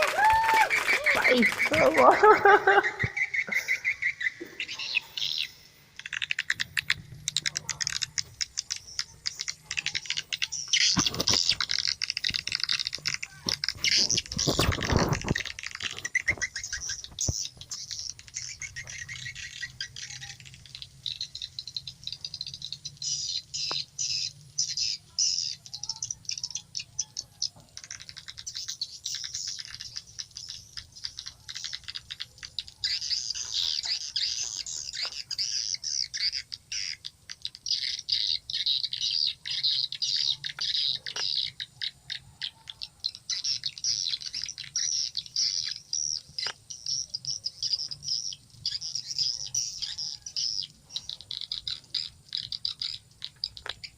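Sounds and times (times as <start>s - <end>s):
bird calls from phone speaker: 0.2s - 20.9s.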